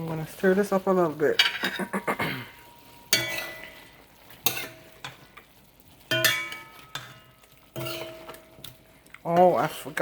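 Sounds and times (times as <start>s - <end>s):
metal spoon clanking on pot: 1.3s - 2.0s, 2.8s - 9.6s.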